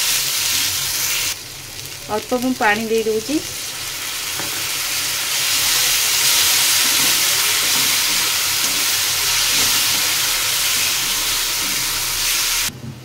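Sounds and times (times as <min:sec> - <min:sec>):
masala sizzling in hot oil: 0:00.0 - 0:12.7
spatula scraping a wok: 0:04.3 - 0:12.7.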